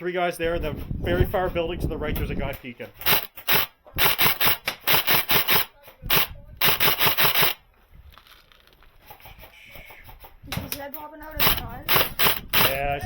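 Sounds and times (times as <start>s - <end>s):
airsoft gun shots: 3.0s - 7.6s, 11.4s - 12.8s.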